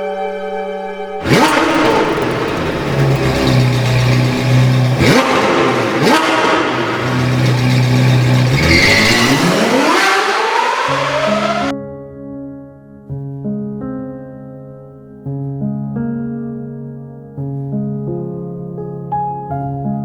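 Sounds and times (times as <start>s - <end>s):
car engine revving: 1.2s - 11.7s.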